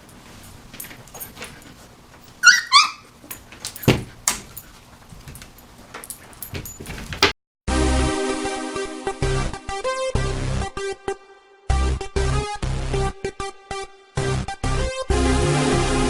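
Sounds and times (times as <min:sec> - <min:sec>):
small clicks and rustles: 0:00.0 - 0:07.3
puppy whimpering: 0:02.3 - 0:03.3.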